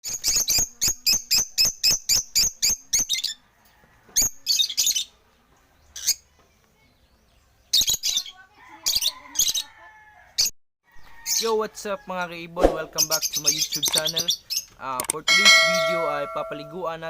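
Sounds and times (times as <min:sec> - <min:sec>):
lovebirds chirping: 0:12.7 - 0:17.0.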